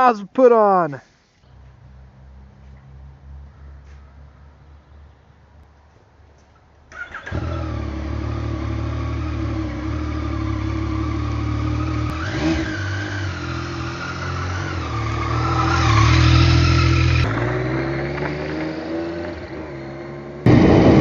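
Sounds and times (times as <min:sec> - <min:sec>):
motorcycle engine running: 0:07.4 - 0:21.0.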